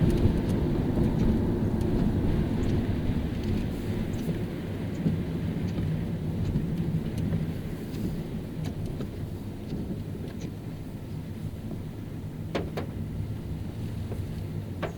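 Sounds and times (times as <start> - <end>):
light ticks of rain: 0.0 - 14.9
tyres and engine rumbling: 8.3 - 14.9.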